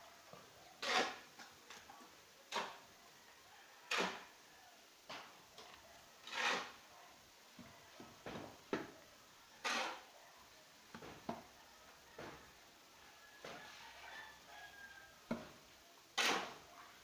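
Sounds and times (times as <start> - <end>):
short scrapes and knocks: 0.8 - 1.2, 6.2 - 6.8, 16.2 - 16.6.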